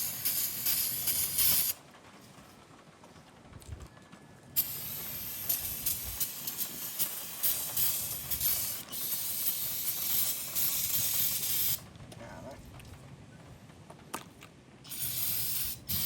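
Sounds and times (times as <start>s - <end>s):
aerosol can spraying hiss: 0.0s - 1.8s, 4.6s - 11.8s, 14.9s - 16.0s.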